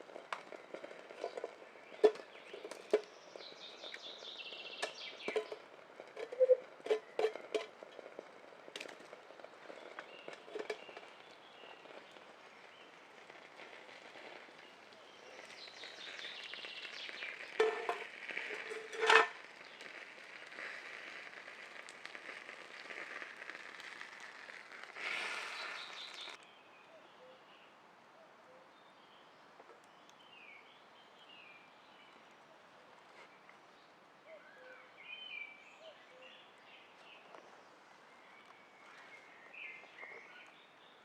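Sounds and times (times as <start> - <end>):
food sizzling over campfire: 0.0 - 26.4.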